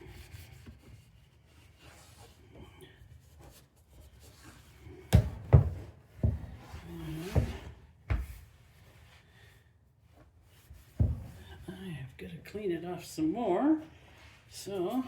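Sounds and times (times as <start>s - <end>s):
rubbing and wiping: 0.0s - 2.5s, 3.1s - 9.3s, 10.0s - 11.6s.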